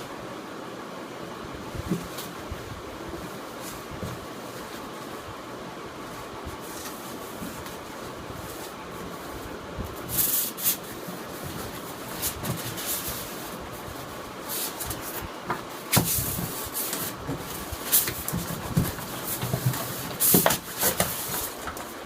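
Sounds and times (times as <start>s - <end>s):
packaging rubbing and rustling: 6.0s - 22.0s.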